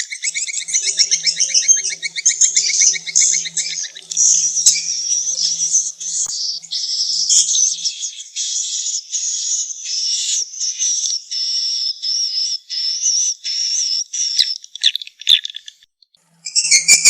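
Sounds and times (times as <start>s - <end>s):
swiftlet twittering chirps: 0.0s - 10.4s, 16.5s - 17.0s.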